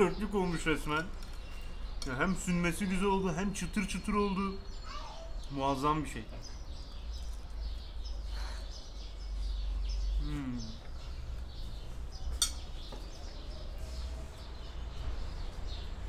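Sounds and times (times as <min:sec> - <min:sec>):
small birds chirping: 0:00.0 - 0:16.0
man humming while chewing: 0:10.2 - 0:11.0.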